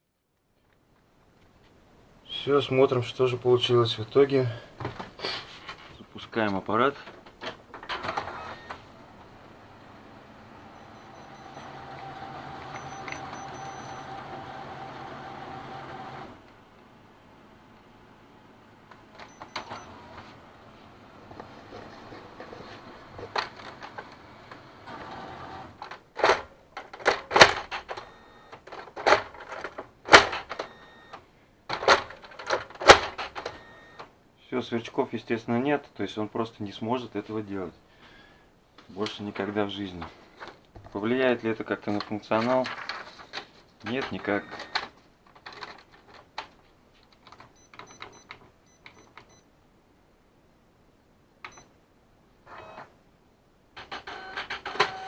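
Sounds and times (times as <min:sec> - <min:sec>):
document feeder whirr: 0:07.3 - 0:34.1, 0:42.5 - 0:45.8, 0:53.8 - 0:55.0
short high key beeps: 0:12.7 - 0:14.0
sharp plastic clicks and clunks: 0:21.4 - 0:34.1, 0:42.0 - 0:49.4.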